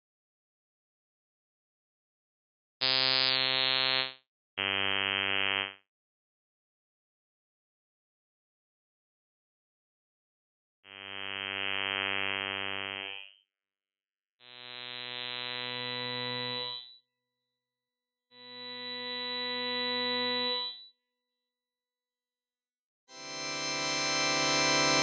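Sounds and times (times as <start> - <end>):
buzzy sustained synthesizer notes: 23.2 - 25.0.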